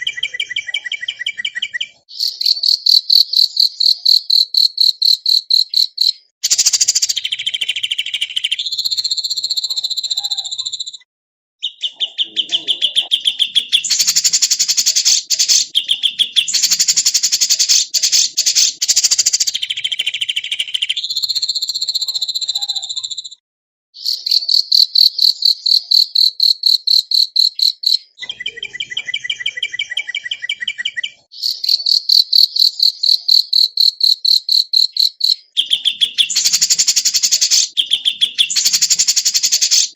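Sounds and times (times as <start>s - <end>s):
buzzy songbird trills: 2.2s - 7.4s, 13.1s - 19.7s, 31.4s - 39.9s
clear whistled bird notes: 11.6s - 23.4s, 28.2s - 31.2s, 35.6s - 39.9s.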